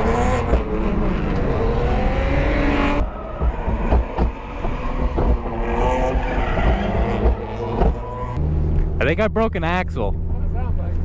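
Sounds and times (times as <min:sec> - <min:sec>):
car engine revving: 0:00.0 - 0:11.0
clunks and knocks from car: 0:03.3 - 0:08.0.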